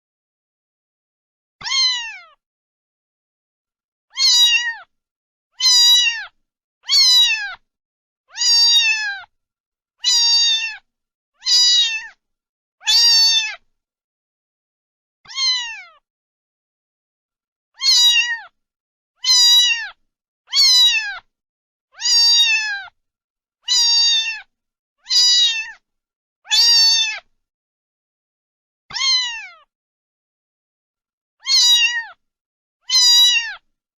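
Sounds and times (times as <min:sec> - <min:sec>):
cat meowing: 0:01.6 - 0:02.4, 0:04.1 - 0:04.9, 0:05.6 - 0:07.6, 0:08.3 - 0:09.3, 0:10.0 - 0:12.2, 0:12.8 - 0:13.6, 0:15.3 - 0:16.0, 0:17.8 - 0:18.6, 0:19.2 - 0:21.3, 0:22.0 - 0:23.0, 0:23.6 - 0:25.8, 0:26.5 - 0:27.3, 0:28.9 - 0:29.7, 0:31.4 - 0:32.2, 0:32.8 - 0:33.7.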